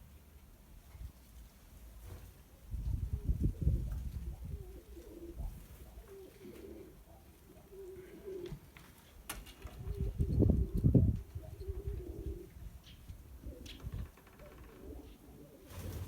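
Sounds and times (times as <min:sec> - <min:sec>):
pigeons cooing: 0:02.9 - 0:08.8, 0:09.7 - 0:16.0.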